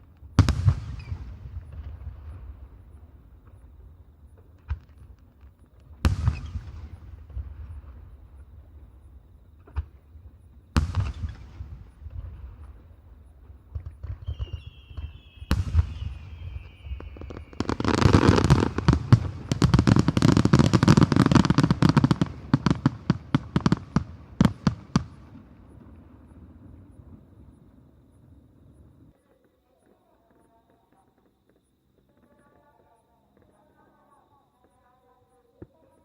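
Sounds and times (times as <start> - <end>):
firework shells booming: 10.7 - 27.3
firework whistle falling in pitch: 14.2 - 18.8.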